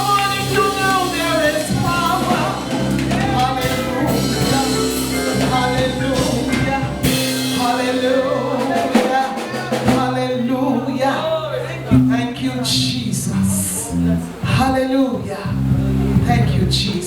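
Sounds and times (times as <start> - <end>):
band playing gospel music: 0.0 - 17.0
singers: 0.0 - 17.0.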